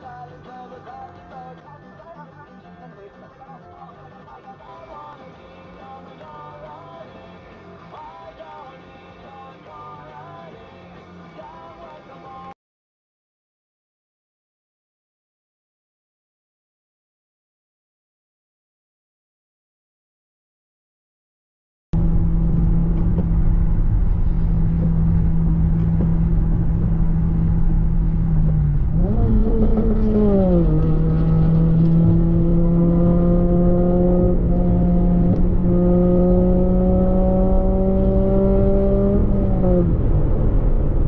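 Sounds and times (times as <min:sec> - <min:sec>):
vehicle engine running: 0:22.0 - 0:41.0.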